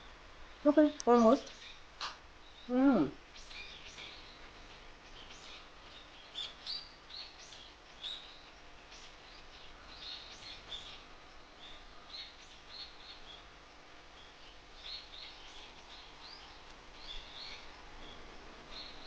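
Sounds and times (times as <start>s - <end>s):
background hiss: 0.0s - 19.0s
small birds chirping: 0.6s - 19.0s.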